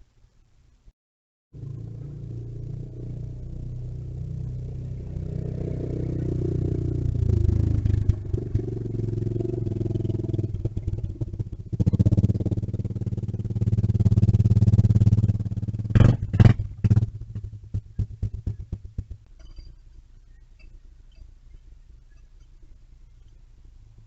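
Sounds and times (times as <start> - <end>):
mini bike engine running: 1.6 - 19.2.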